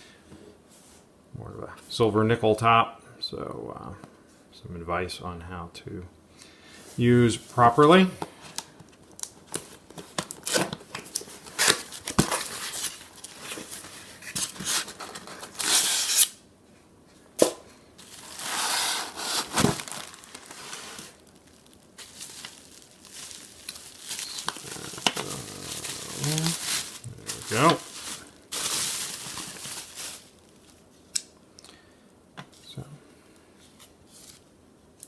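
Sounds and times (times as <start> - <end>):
packaging tearing and crinkling: 8.6 - 16.3, 18.0 - 30.8.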